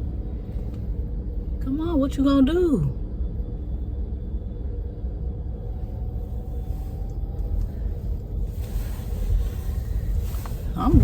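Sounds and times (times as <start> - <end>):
car cabin rumble: 5.7 - 11.0.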